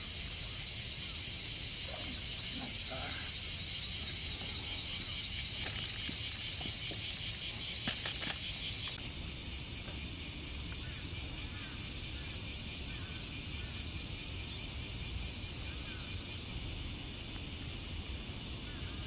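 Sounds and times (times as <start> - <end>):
faint chirps: 0.0 - 9.0
insect chorus: 0.0 - 19.0.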